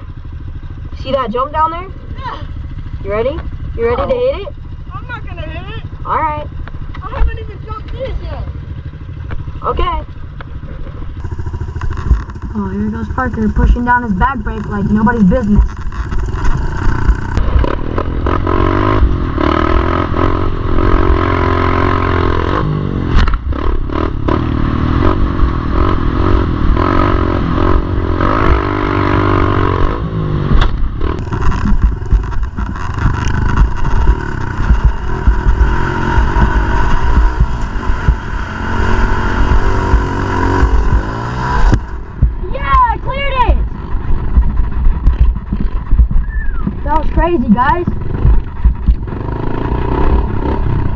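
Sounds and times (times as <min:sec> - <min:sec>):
pit bike engine revving: 0:00.0 - 0:50.9
knocks and clatter: 0:09.1 - 0:19.9, 0:27.7 - 0:38.2, 0:43.5 - 0:50.6.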